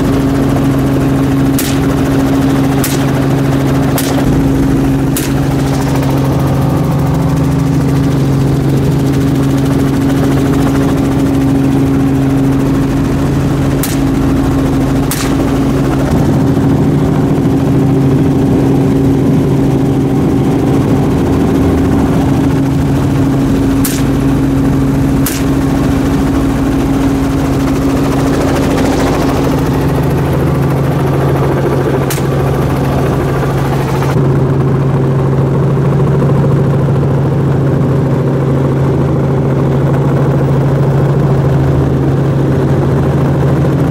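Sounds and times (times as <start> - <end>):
helicopter engine and rotor drone: 0.0 - 43.9
sharp clicks: 5.2 - 5.9, 13.8 - 14.2, 15.1 - 15.6, 23.8 - 24.2.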